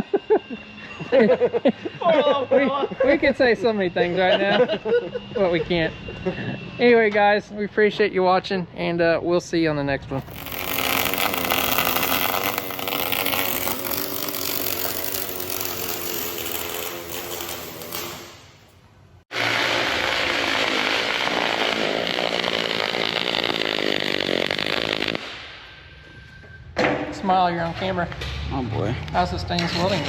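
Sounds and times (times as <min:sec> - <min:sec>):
loud power tool noise: 0:10.2 - 0:18.6, 0:19.3 - 0:25.5
steady machine sound: 0:10.2 - 0:18.7.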